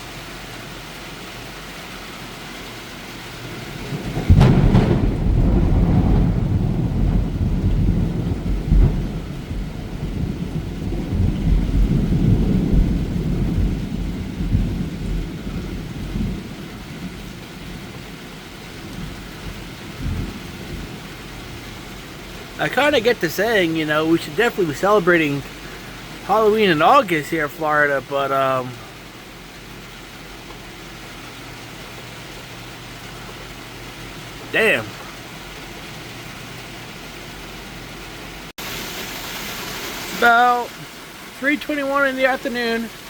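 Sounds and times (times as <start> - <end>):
steady rain falling: 0.0 - 43.0
thunderclap with rolling rumble: 3.3 - 35.3.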